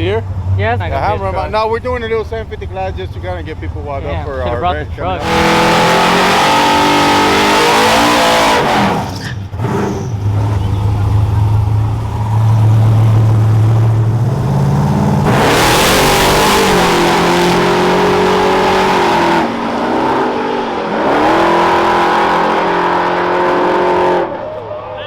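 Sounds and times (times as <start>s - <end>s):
drag racing engine revving: 5.0s - 24.8s.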